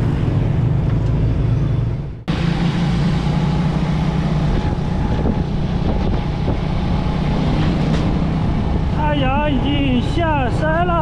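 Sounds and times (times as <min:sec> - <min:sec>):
wind rushing on microphone: 0:04.2 - 0:11.0.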